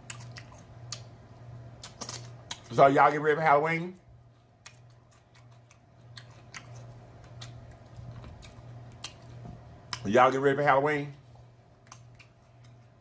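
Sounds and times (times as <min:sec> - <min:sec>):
person chewing: 0:00.0 - 0:02.9, 0:04.3 - 0:10.1, 0:11.8 - 0:13.0
low steady hum: 0:00.0 - 0:13.0.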